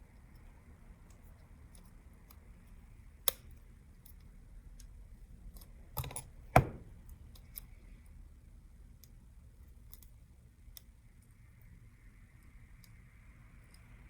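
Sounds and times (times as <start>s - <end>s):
phone parts clicking as pried: 6.0s - 6.8s.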